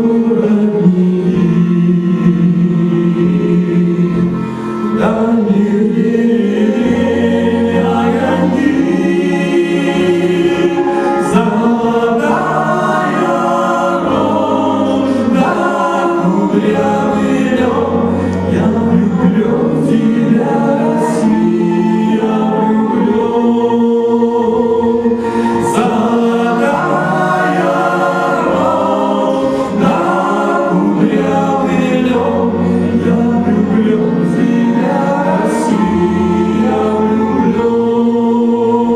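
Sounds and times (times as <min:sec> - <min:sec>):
choir singing folk song: 0:00.0 - 0:38.9.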